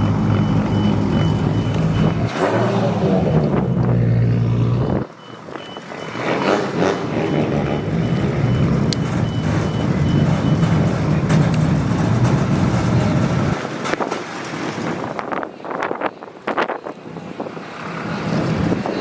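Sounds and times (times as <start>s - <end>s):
reversing beeper: 0.0s - 11.8s
vehicle engine rumbling: 0.0s - 19.0s
wind buffeting microphone: 8.1s - 19.0s.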